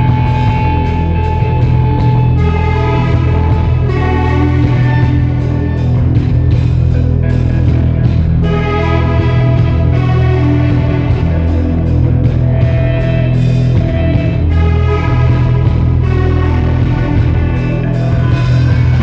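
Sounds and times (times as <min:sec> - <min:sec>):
heavy bass: 0:00.0 - 0:19.0
live rock band playing: 0:00.0 - 0:19.0
steady drum beat: 0:00.0 - 0:19.0.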